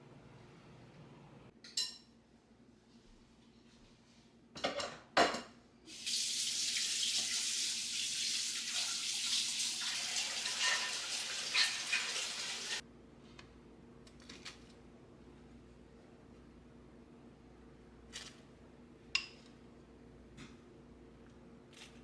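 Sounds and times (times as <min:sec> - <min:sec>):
tap running water into sink: 0:05.9 - 0:12.8.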